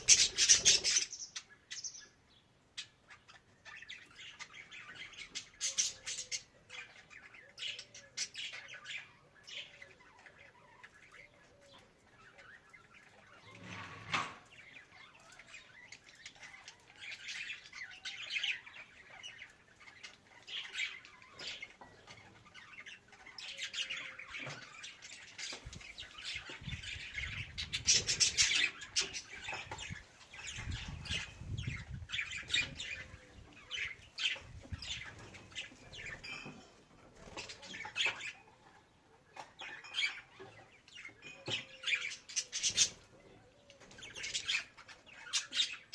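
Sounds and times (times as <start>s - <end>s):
budgerigar chirping and squawking: 0.0s - 2.0s.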